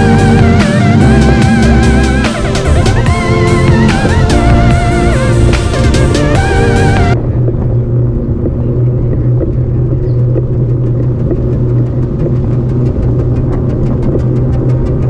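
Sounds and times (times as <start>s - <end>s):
road and traffic rumble: 0.0s - 15.0s
rapid even ticking: 8.4s - 15.0s.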